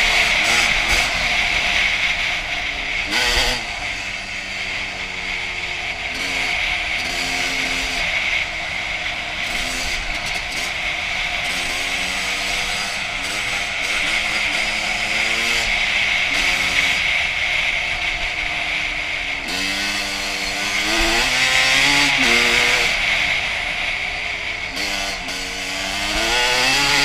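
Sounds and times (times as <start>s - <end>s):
motorcycle two-stroke engine revving: 0.0s - 27.0s.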